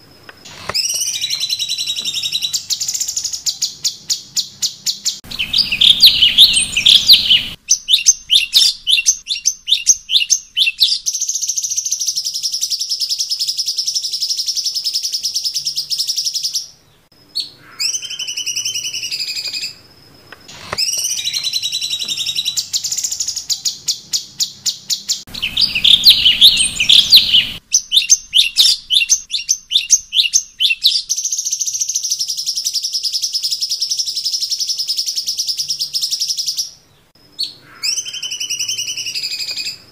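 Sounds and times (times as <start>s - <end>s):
songbird chirping rapidly: 0.3s - 39.9s
sliding whistled bird notes: 0.4s - 12.0s, 20.5s - 33.7s, 37.4s - 39.9s.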